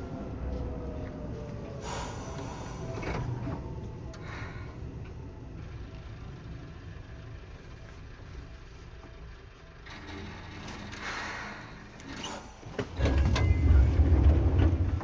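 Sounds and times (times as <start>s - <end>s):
low hum of standing train: 0.0s - 15.0s
train clunk: 2.1s - 4.4s, 9.8s - 15.0s.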